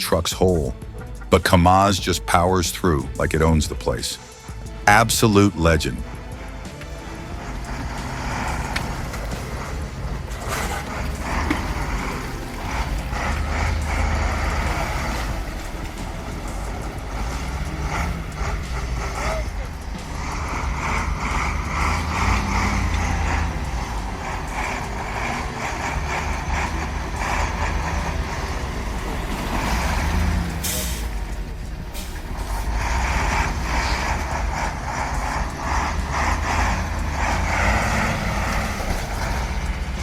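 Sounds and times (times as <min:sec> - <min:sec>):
heavy truck engine rumbling: 0:00.0 - 0:40.0
air hiss: 0:29.6 - 0:31.2.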